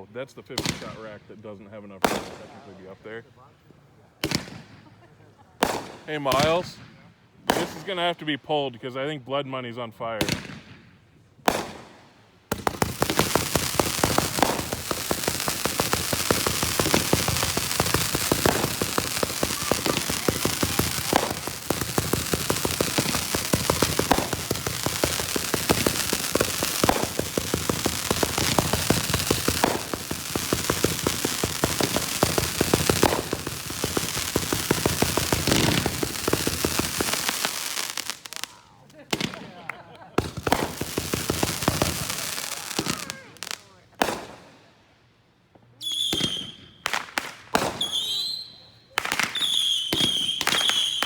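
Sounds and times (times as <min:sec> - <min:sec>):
fireworks popping: 0:07.5 - 0:07.9, 0:11.5 - 0:44.5, 0:46.1 - 0:48.4, 0:49.0 - 0:51.0
fireworks crackling: 0:11.5 - 0:44.5, 0:46.0 - 0:51.0.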